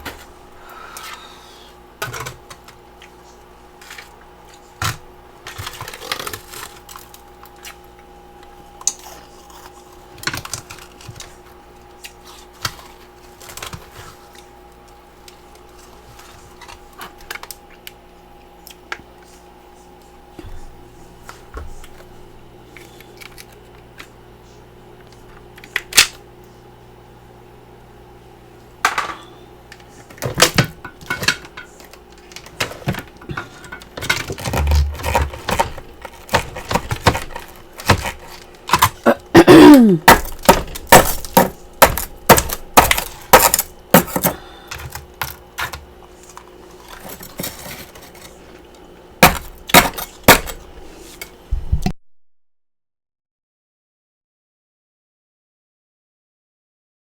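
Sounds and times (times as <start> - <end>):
ice crunching being chewed: 5.5 - 14.4.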